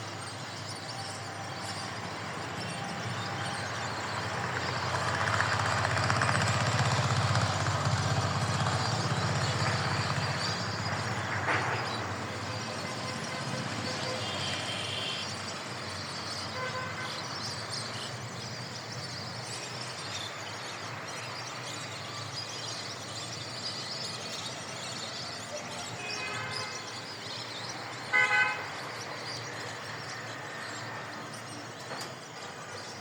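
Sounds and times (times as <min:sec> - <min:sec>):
outdoor background noise: 0:00.0 - 0:33.0
vehicle horn tooting: 0:28.1 - 0:28.7.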